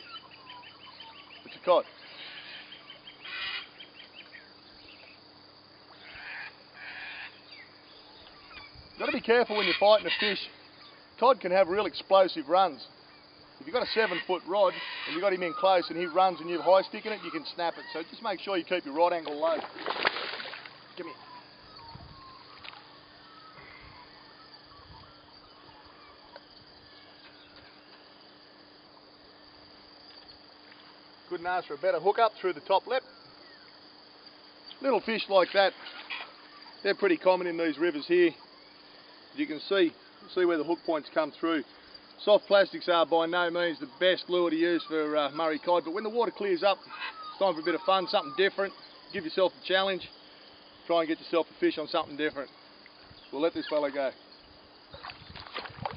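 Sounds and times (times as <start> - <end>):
faint bird chirps and whistles: 0.0 - 5.2, 6.0 - 9.0, 21.0 - 27.8, 46.9 - 49.2
birds chirping: 0.0 - 19.6, 20.3 - 29.2, 29.9 - 55.2.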